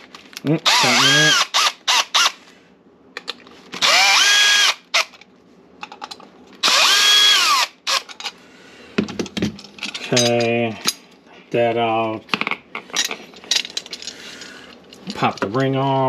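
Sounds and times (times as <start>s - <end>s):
cordless drill whining: 0.7s - 2.4s, 3.8s - 5.1s, 6.6s - 8.1s.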